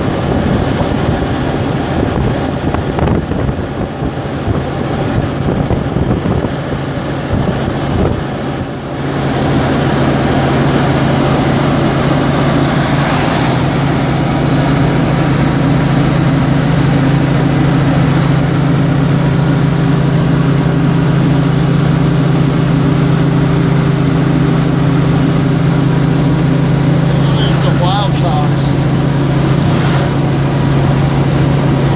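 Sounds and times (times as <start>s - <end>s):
car road and engine noise: 0.0s - 31.9s
low hum: 8.6s - 31.9s.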